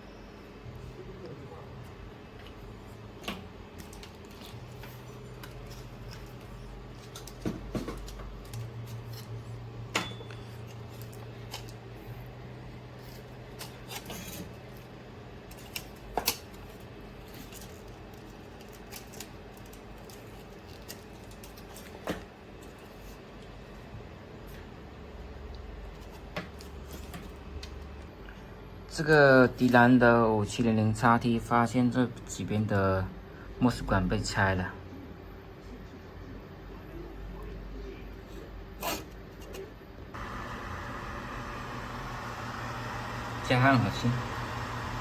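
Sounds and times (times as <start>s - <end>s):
low steady hum: 40.1s - 45.0s.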